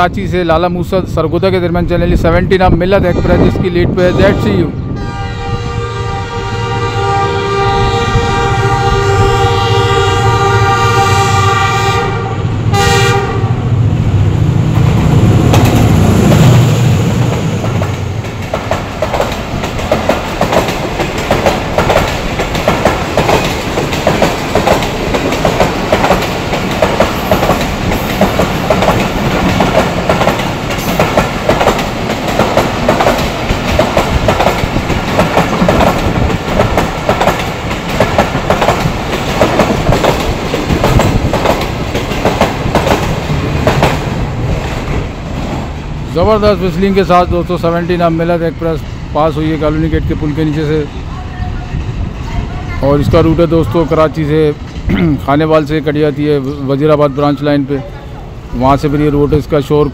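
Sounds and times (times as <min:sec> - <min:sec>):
locomotive engine rumbling: 0:00.0 - 0:59.9
locomotive horn: 0:03.1 - 0:13.7
clickety-clack of train wheels: 0:14.8 - 0:45.8.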